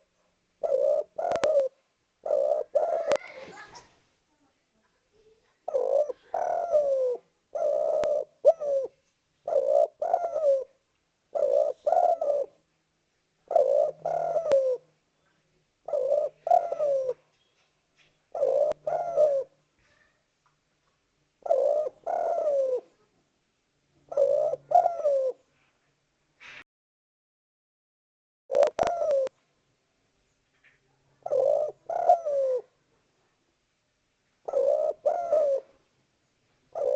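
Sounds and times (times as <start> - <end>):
dove cooing: 0.0 - 3.9, 5.6 - 12.6, 13.4 - 14.9, 15.8 - 17.3, 18.3 - 19.6, 21.4 - 23.0, 24.1 - 25.5, 28.5 - 29.4, 30.7 - 32.8, 34.4 - 35.8.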